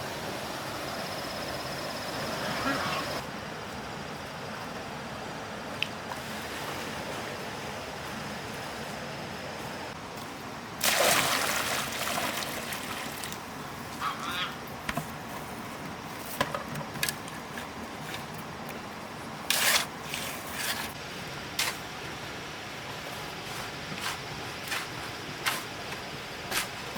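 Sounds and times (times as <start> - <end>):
loud splash: 10.8 - 12.9
wet cement sloshing and scraping: 19.5 - 21.0.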